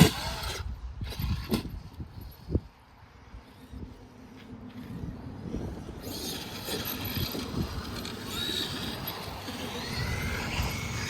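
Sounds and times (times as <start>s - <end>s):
rough noise of toy truck running: 0.0s - 2.7s, 4.8s - 11.0s
electric motor whining: 5.8s - 11.0s.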